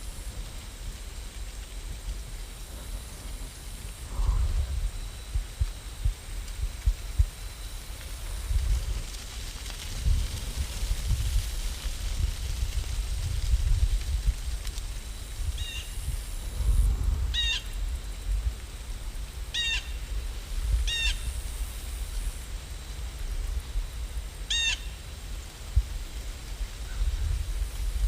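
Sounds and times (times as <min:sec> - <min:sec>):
faint hiss: 0:00.0 - 0:28.0
low rumble: 0:01.5 - 0:07.4.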